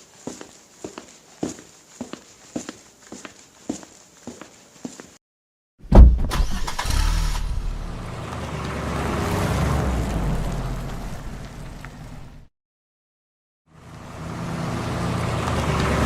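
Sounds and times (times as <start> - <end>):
vehicle engine running: 13.8 - 16.0.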